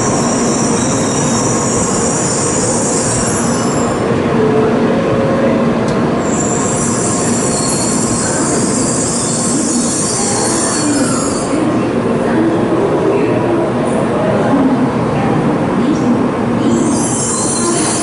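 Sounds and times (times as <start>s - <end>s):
train wheels squealing: 0.0s - 4.0s, 6.2s - 11.6s, 16.6s - 18.0s
falling tones of slowing train: 0.0s - 18.0s
train rumbling: 0.0s - 18.0s.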